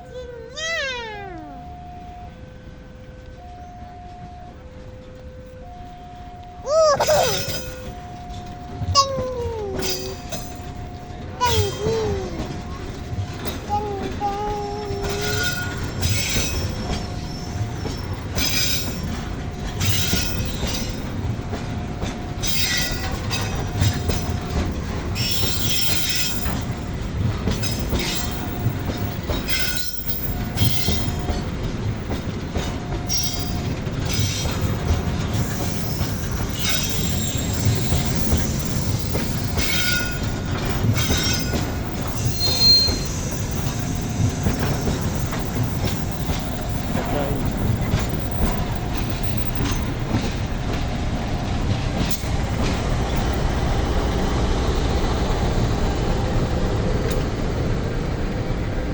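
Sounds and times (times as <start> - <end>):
train rumble: 0.0 - 58.9
train wheels clacking over rail joints: 9.7 - 58.9
wheel squeals: 27.6 - 55.2.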